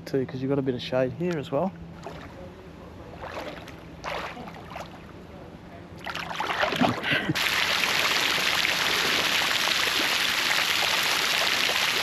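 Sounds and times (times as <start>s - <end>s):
gushing splashing water: 6.0s - 12.0s.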